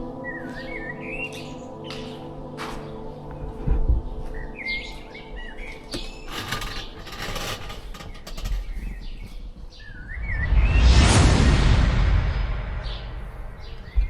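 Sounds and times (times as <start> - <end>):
rustling and clicks: 5.9 - 9.4.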